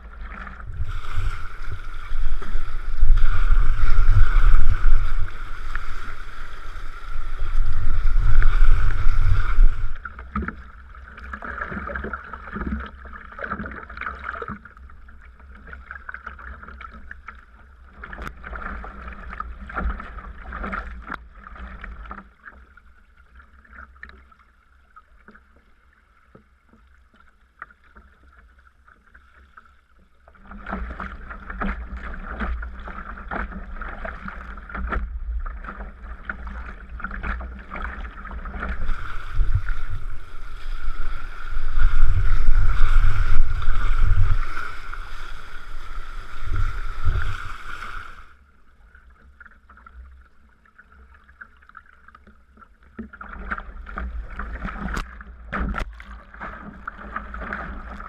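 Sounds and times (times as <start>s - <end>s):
deep rumble: 0.0s - 10.1s, 37.6s - 47.8s
paddle strokes splashing: 0.0s - 24.3s, 25.2s - 58.0s
water lapping against hull: 0.0s - 58.0s.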